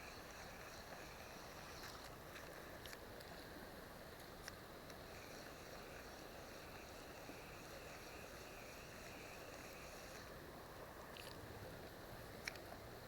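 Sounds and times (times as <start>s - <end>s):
thin high wavering hum: 0.0s - 2.8s, 4.6s - 12.2s.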